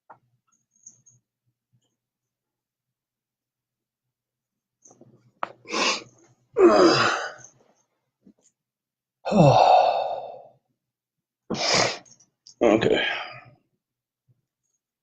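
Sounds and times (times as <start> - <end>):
man groaning sighs: 6.6 - 7.5, 9.2 - 10.5.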